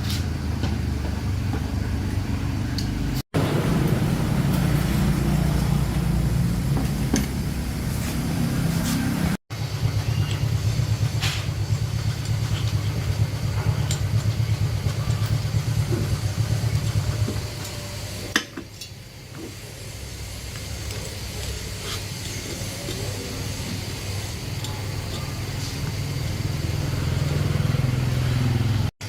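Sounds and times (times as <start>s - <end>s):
motor throbbing: 3.4s - 18.3s, 20.1s - 28.9s.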